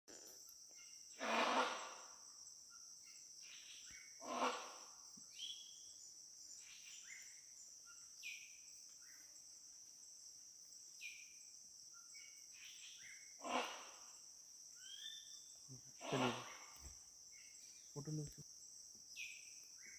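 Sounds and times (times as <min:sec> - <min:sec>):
insects droning: 0:00.1 - 0:19.9
hornbill harsh calls: 0:01.2 - 0:02.2, 0:04.2 - 0:05.0, 0:13.4 - 0:14.1, 0:15.9 - 0:16.8.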